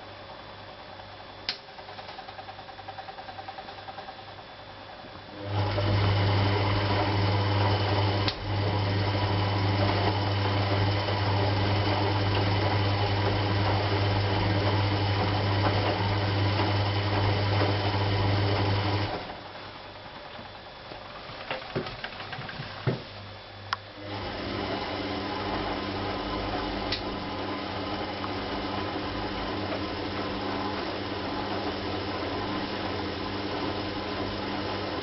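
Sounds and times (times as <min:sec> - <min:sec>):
washing machine humming: 0:00.0 - 0:35.0.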